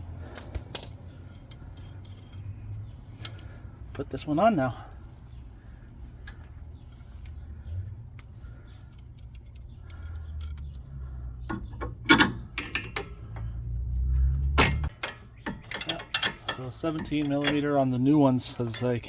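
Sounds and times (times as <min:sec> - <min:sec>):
low steady hum: 0:00.0 - 0:19.0
metal parts clinking: 0:00.7 - 0:03.6, 0:06.2 - 0:07.4, 0:08.1 - 0:13.6, 0:14.6 - 0:19.0.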